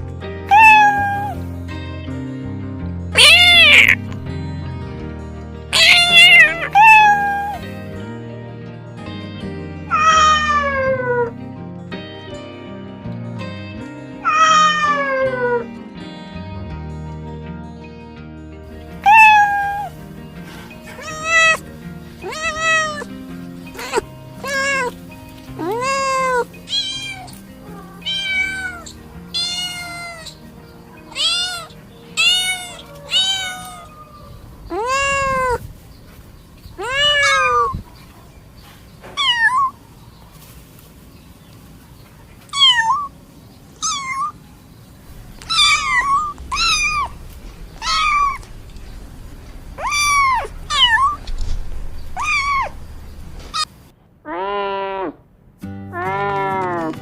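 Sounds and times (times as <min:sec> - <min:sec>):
soft background music: 0:00.0 - 0:53.7
cats meowing: 0:00.5 - 0:01.4, 0:03.2 - 0:04.3, 0:05.8 - 0:07.7, 0:09.9 - 0:11.3, 0:14.2 - 0:15.7, 0:19.0 - 0:20.0, 0:20.7 - 0:38.1, 0:39.0 - 0:39.8, 0:42.4 - 0:43.2, 0:43.8 - 0:44.4, 0:45.1 - 0:53.7.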